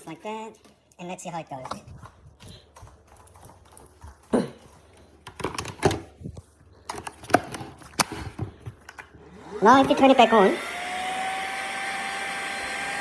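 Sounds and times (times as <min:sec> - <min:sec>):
plastic parts clicking: 0:05.2 - 0:06.1, 0:06.8 - 0:09.1.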